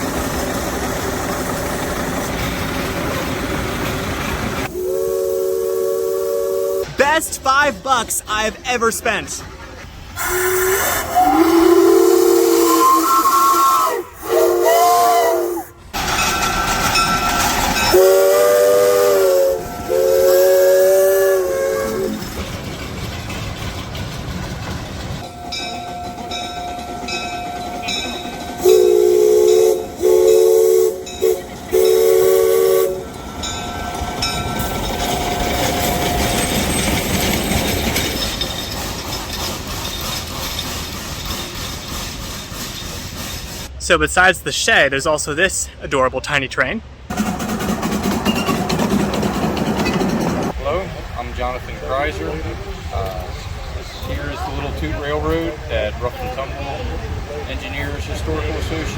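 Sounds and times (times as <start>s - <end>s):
steady locomotive hiss: 0.0s - 46.2s, 46.8s - 58.9s
chime steam whistle blasts: 4.7s - 7.0s, 10.2s - 22.1s, 25.3s - 36.5s.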